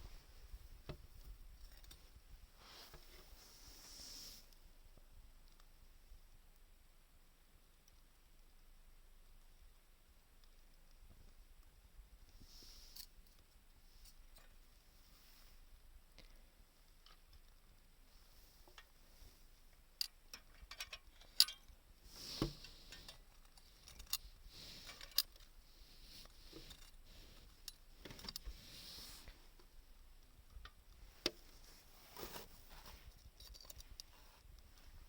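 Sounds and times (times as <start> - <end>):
small wood fire crackling: 0.0 - 35.0.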